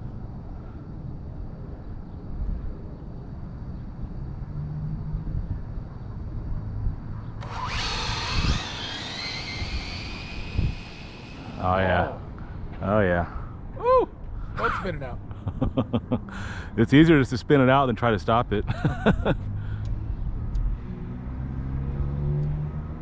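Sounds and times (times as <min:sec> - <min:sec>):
electric motor whine: 0:07.4 - 0:12.4
low rumbling noise: 0:07.4 - 0:14.6.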